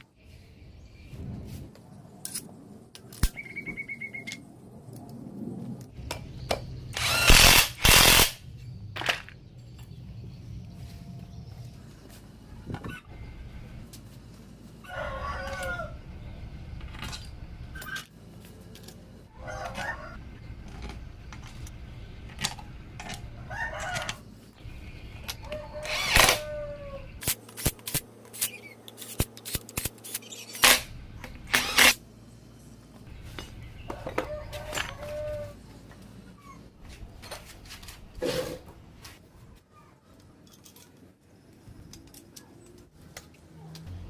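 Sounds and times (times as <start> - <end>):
steady low hum: 0.0 - 39.6
chicken calling: 33.9 - 35.8.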